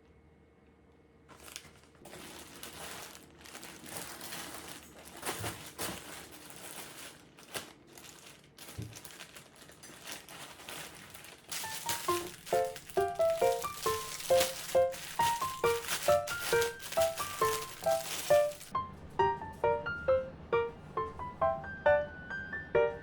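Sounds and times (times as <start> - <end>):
packaging crinkling: 1.3 - 18.8.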